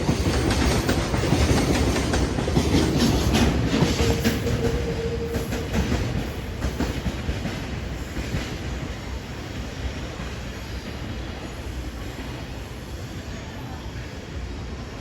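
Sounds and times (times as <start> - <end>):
wheels clicking over rail joints: 0.0 - 8.6
train rumble: 0.0 - 15.0.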